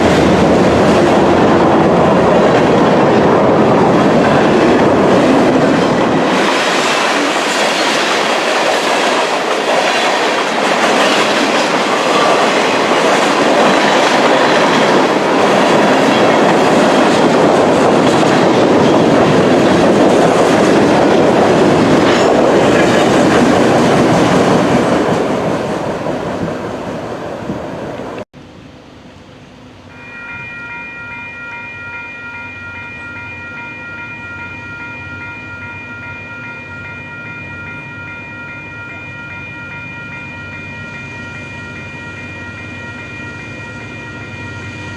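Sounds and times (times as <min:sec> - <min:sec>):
train wheels clickety-clack on rails: 0:00.0 - 0:28.2.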